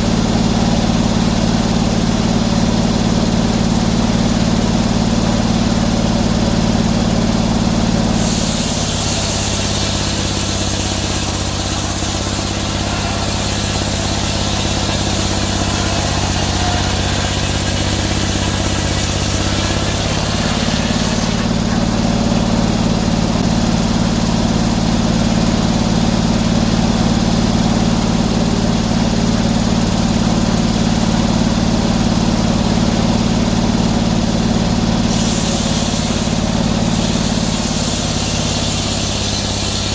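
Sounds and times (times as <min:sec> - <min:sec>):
sawmill engine running: 0:00.0 - 0:39.9
saw blade cutting wood: 0:08.1 - 0:23.5, 0:35.0 - 0:39.9.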